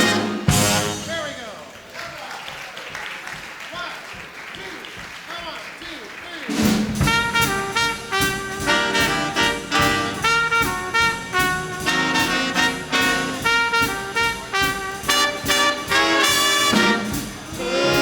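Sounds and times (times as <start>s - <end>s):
trumpets and trombones: 0.0s - 1.6s, 6.5s - 18.0s
swing big band playing: 0.0s - 2.0s, 6.5s - 18.0s.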